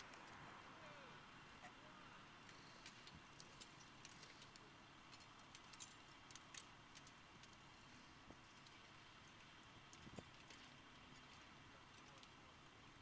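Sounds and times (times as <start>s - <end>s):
faint crackling clicks: 2.4s - 12.4s.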